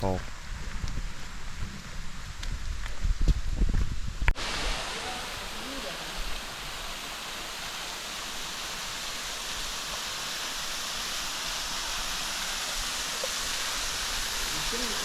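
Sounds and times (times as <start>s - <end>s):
waterfall rushing: 4.4s - 15.0s.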